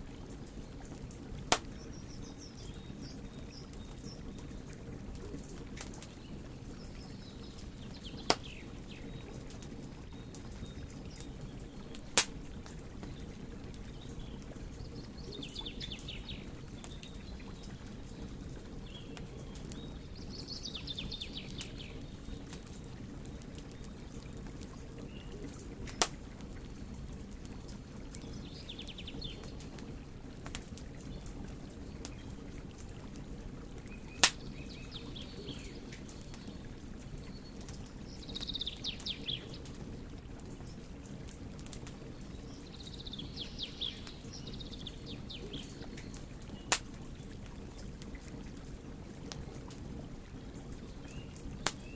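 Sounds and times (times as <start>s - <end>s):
wood fire burning: 0.0s - 51.9s
sharp fire pops: 1.5s - 1.8s, 8.2s - 8.6s, 11.9s - 12.4s, 25.8s - 26.2s, 34.2s - 34.5s, 46.6s - 47.1s, 51.6s - 51.9s.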